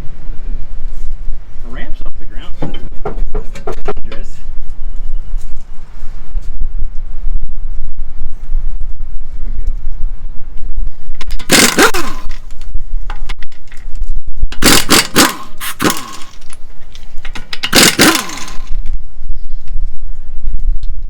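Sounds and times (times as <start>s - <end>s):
impact wrench bursts: 11.3s - 12.5s, 14.6s - 18.8s.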